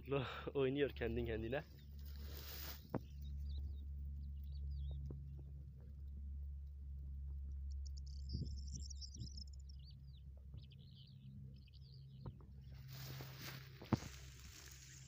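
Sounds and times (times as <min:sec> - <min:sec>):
small birds chirping: 0:00.8 - 0:06.1, 0:07.4 - 0:15.0
wind rumble on microphone: 0:00.9 - 0:15.0
rustling grass: 0:01.8 - 0:03.6, 0:12.6 - 0:15.0.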